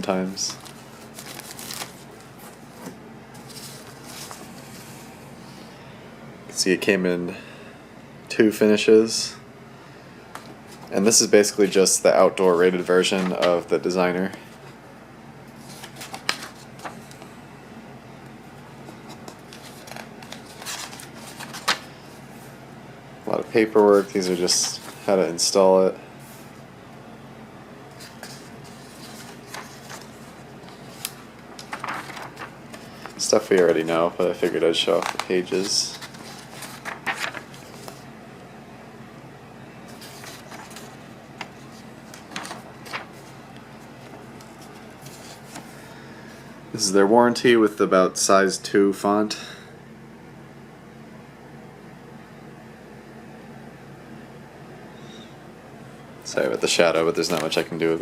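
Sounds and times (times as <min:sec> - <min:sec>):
paper rustling: 0:00.0 - 0:05.1, 0:10.4 - 0:13.7, 0:15.5 - 0:17.3, 0:18.8 - 0:22.2, 0:23.3 - 0:25.6, 0:27.9 - 0:38.1, 0:39.8 - 0:45.8, 0:56.7 - 0:58.0
faint steady hum: 0:00.0 - 0:58.0.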